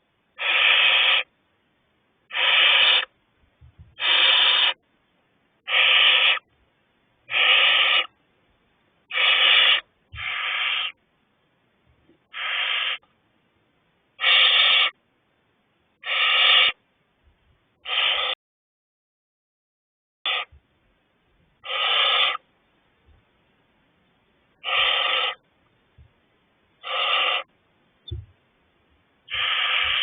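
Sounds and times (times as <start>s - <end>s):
owlets hissing calls: 0.4s - 1.3s, 2.3s - 3.1s, 4.0s - 4.8s, 5.6s - 6.5s, 7.3s - 8.2s, 9.1s - 11.0s, 12.2s - 13.0s, 14.2s - 15.0s, 16.0s - 16.8s, 17.8s - 18.4s, 20.3s - 20.6s, 21.6s - 22.4s, 24.6s - 25.4s, 26.8s - 27.5s, 29.3s - 30.0s.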